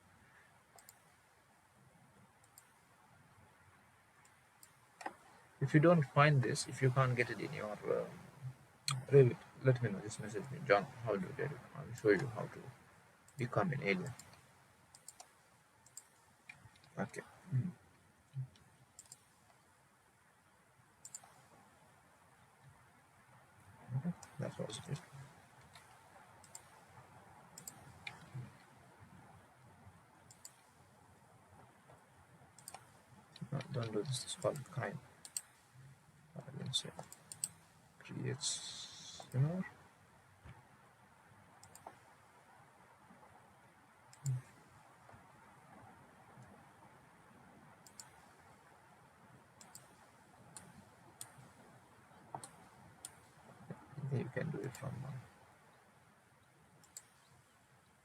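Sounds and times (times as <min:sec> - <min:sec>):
faint room hiss: 0:00.0 - 0:58.0
computer mouse clicks: 0:00.7 - 0:01.2, 0:02.4 - 0:02.9, 0:04.2 - 0:05.3, 0:08.9 - 0:11.3, 0:13.3 - 0:17.2, 0:18.3 - 0:19.6, 0:21.0 - 0:21.5, 0:24.0 - 0:28.7, 0:30.3 - 0:30.8, 0:32.6 - 0:35.7, 0:36.6 - 0:37.8, 0:38.9 - 0:39.6, 0:41.6 - 0:42.1, 0:44.1 - 0:46.6, 0:47.8 - 0:48.6, 0:49.6 - 0:51.7, 0:52.3 - 0:55.3, 0:56.4 - 0:58.0.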